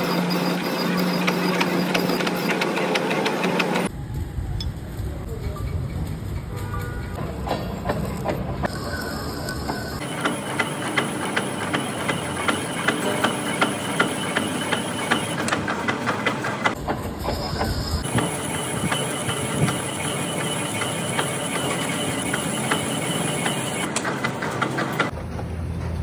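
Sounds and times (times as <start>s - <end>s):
metalworking machine running: 0.0s - 26.0s
rapid regular clicking: 5.0s - 16.8s.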